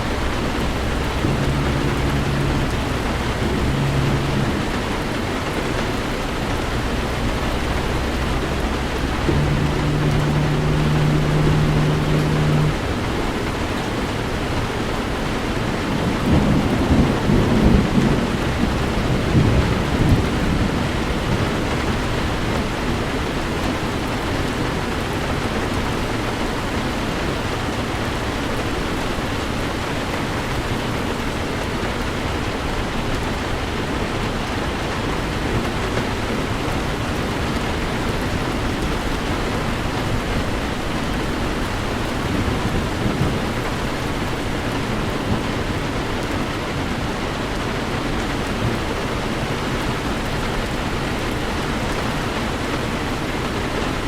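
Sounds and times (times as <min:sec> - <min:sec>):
low steady hum: 0:00.0 - 0:23.9
thunder rumbling: 0:00.0 - 0:25.1, 0:32.1 - 0:53.6
heavy rain on a car: 0:00.0 - 0:54.0.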